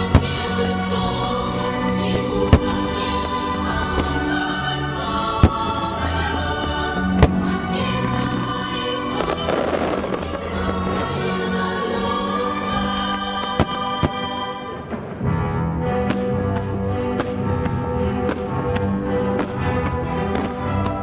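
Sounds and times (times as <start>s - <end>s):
firework bangs: 0.0s - 11.0s, 13.5s - 15.3s
fireworks crackling: 0.0s - 11.3s, 13.4s - 15.3s
choral music: 0.0s - 21.0s.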